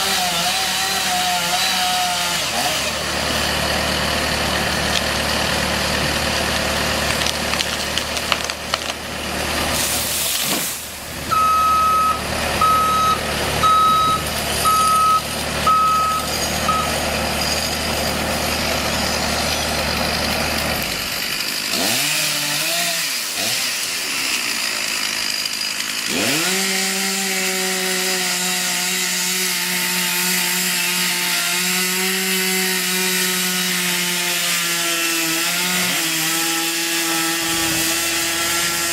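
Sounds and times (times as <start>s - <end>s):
chainsaw cutting wood: 0.0s - 38.9s
skid-steer engine running: 2.9s - 21.8s
reverse alarm beeping: 11.3s - 17.0s.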